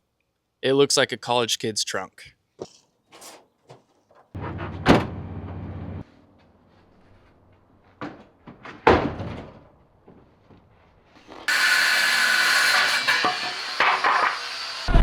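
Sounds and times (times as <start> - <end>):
power tool cutting wood: 11.5 - 15.0.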